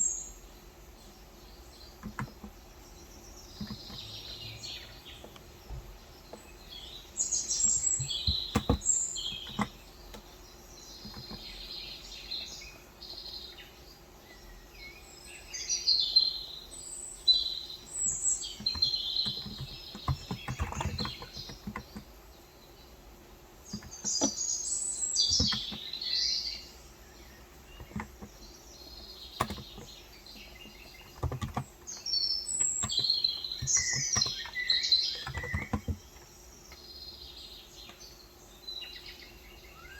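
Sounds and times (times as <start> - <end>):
small birds chirping: 0.0 - 39.9
keyboard key presses: 2.0 - 2.6, 3.5 - 4.3, 7.6 - 10.3, 11.0 - 11.5, 18.1 - 22.1, 25.2 - 25.9, 27.7 - 28.3, 29.4 - 30.0, 30.6 - 32.0, 32.6 - 36.3.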